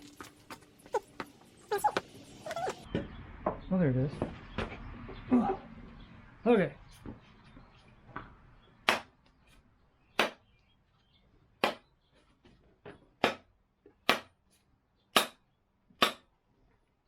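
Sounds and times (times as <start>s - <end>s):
rubber mallet striking axe: 8.9s - 9.1s, 10.2s - 10.4s, 11.6s - 11.8s, 13.2s - 14.4s, 15.1s - 15.4s, 16.0s - 16.3s.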